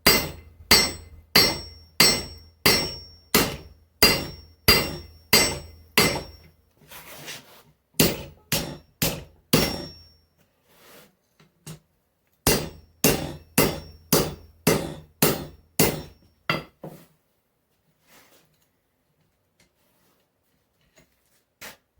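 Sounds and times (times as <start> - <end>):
hammer blows on steel anvil: 0.0 - 6.5, 8.0 - 10.2, 12.5 - 16.7.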